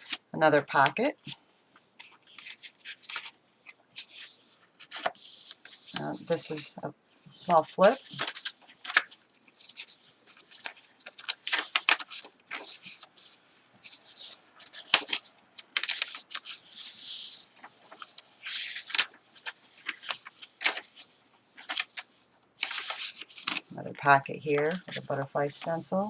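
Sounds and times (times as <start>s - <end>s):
paper pages rustling: 0.0s - 6.6s, 7.4s - 25.9s
paper sliding: 4.0s - 6.5s, 7.5s - 15.2s, 15.8s - 23.6s.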